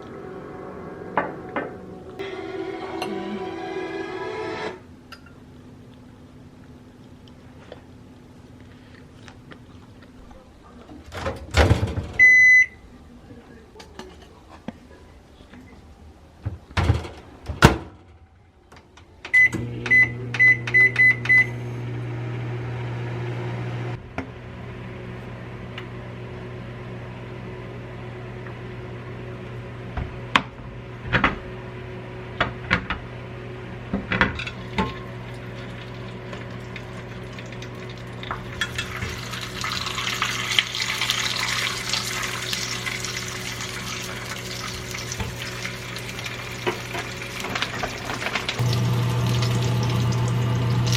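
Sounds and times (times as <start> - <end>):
microwave oven humming: 18.9 - 50.9.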